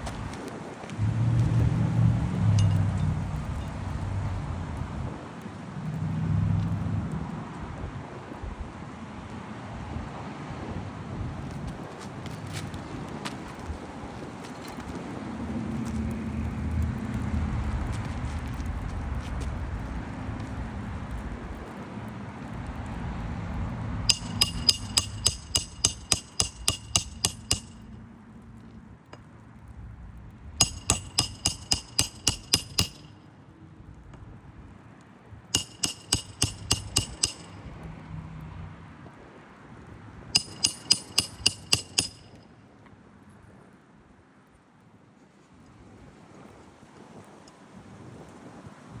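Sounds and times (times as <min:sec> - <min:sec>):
hammer striking metal tool: 0:02.5 - 0:03.1, 0:24.1 - 0:27.9, 0:30.6 - 0:33.1, 0:35.6 - 0:37.7, 0:40.4 - 0:42.4.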